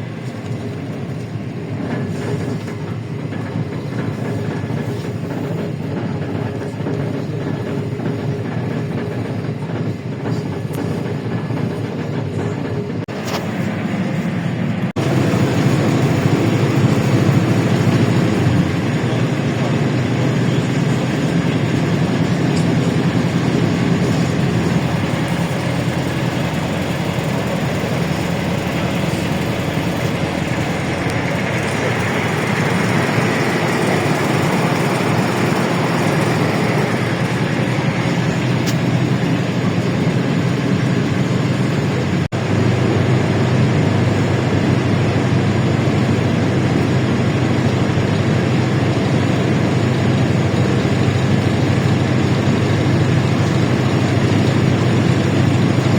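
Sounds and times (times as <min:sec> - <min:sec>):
bus engine droning: 0:00.0 - 0:55.9
road and cabin noise hiss: 0:13.1 - 0:55.9.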